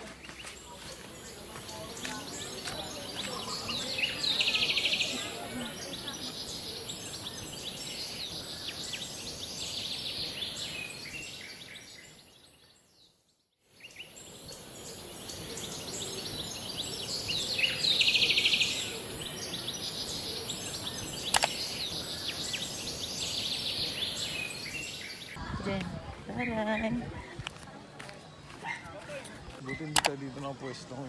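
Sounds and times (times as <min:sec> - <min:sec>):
birds chirping: 0:00.0 - 0:31.0
sharp click: 0:21.3 - 0:21.6.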